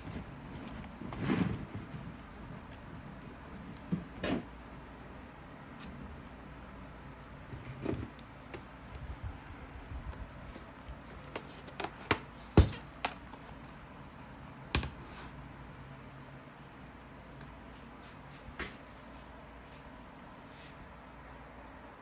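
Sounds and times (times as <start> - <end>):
faint steady hum: 0.0 - 22.0
clicks and knocks of objects handled: 7.5 - 13.8.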